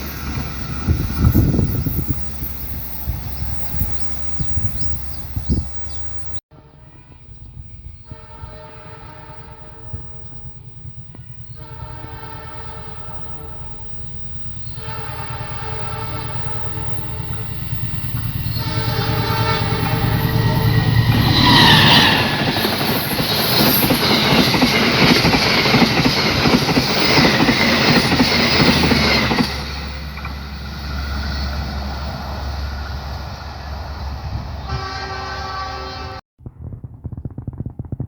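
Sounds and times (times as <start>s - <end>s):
train wagons rushing and clattering: 0.0s - 6.4s, 15.5s - 34.6s
train horn: 6.5s - 17.4s, 18.4s - 22.5s, 34.6s - 36.2s.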